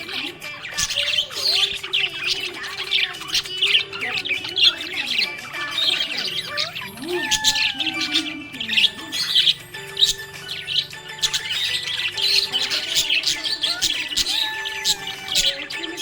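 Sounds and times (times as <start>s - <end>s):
budgerigars chirping: 0.0s - 16.0s.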